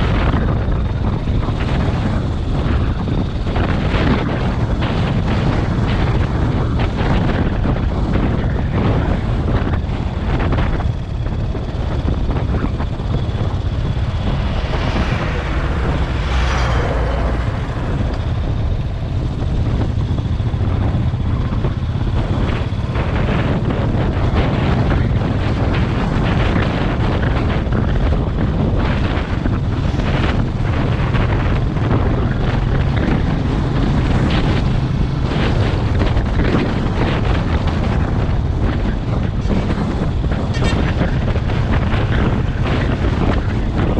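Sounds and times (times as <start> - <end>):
motorcycle engine running: 0.0 - 43.9
wind buffeting on microphone: 0.0 - 43.9
rising and falling whine: 10.9 - 20.4.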